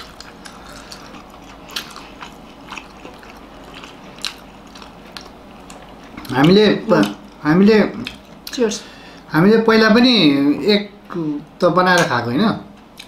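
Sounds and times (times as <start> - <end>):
chewing dumplings: 0.0 - 7.4, 8.0 - 8.6.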